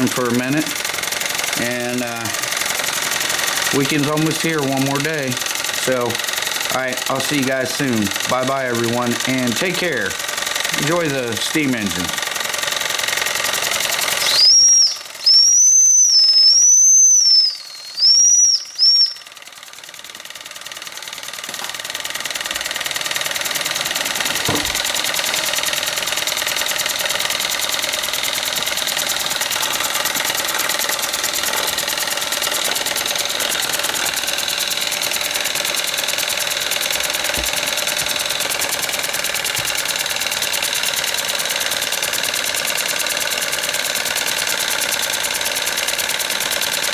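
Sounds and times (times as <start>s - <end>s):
small steam engines running: 0.0s - 46.9s
steam whistle: 14.2s - 19.2s.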